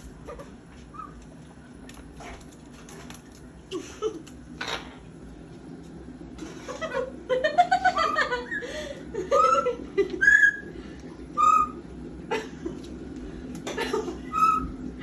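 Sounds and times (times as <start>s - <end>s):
parrot gliding whistles: 0.9s - 1.2s, 8.2s - 11.9s, 14.2s - 14.8s.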